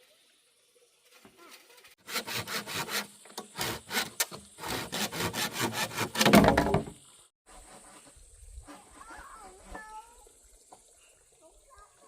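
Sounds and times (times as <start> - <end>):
hand saw cutting wood: 2.0 - 6.9, 7.5 - 9.7.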